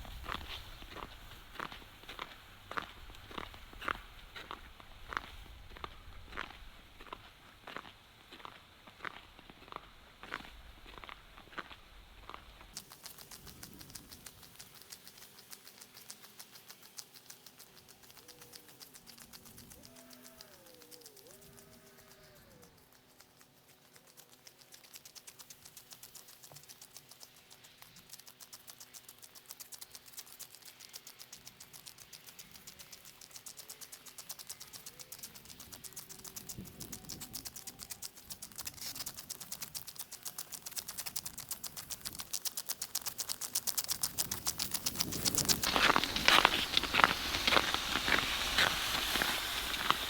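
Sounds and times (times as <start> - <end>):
ice resurfacer ticking on ice: 12.7 - 50.0.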